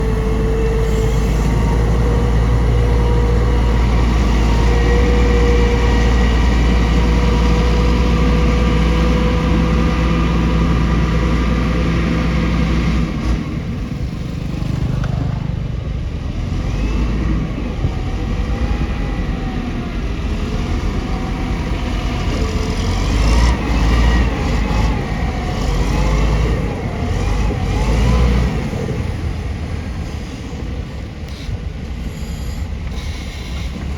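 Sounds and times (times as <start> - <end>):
bulldozer diesel engine: 0.0 - 33.9
steel tracks squealing: 30.2 - 33.9.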